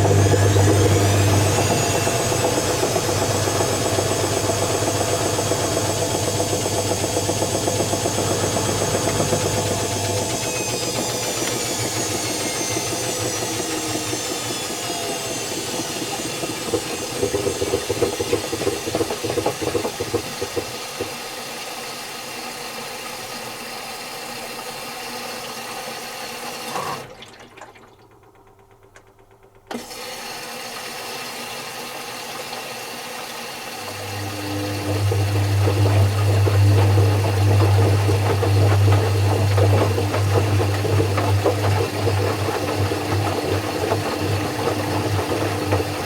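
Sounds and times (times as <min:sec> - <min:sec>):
washing machine rattling: 0:00.0 - 0:21.2, 0:33.9 - 0:46.0
washing machine motor whine: 0:00.0 - 0:46.0.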